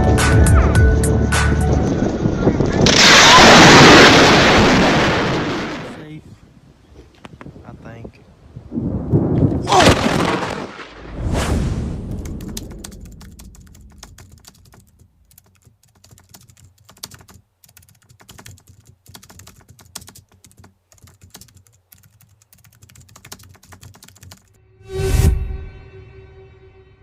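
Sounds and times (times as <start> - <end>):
thunder rumbling: 1.7 - 6.0, 8.6 - 15.1
faint irregular clicks: 12.2 - 24.5.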